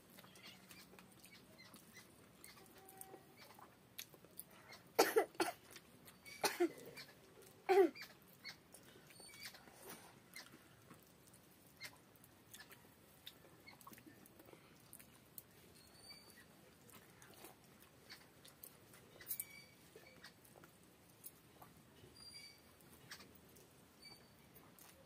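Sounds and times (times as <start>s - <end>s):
chewing and mouth smacks: 0.0s - 5.0s, 5.6s - 19.3s, 24.6s - 25.0s.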